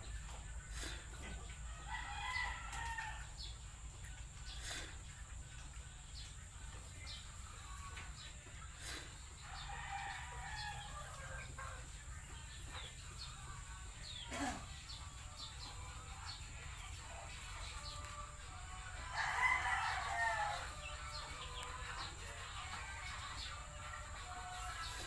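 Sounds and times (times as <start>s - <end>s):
chickens clucking: 0.0s - 25.0s
rooster crowing: 1.7s - 3.4s, 9.5s - 11.4s, 18.9s - 20.8s.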